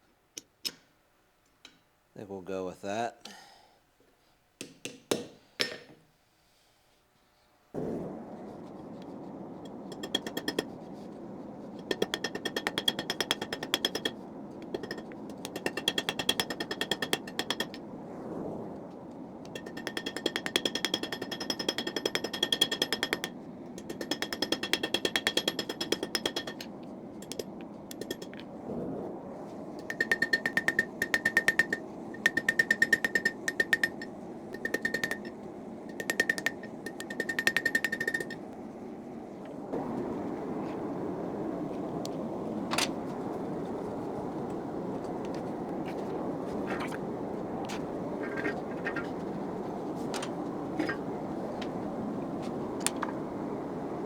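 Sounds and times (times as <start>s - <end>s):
hammer blows on hot steel: 7.8s - 18.8s, 19.4s - 28.5s, 29.3s - 38.5s.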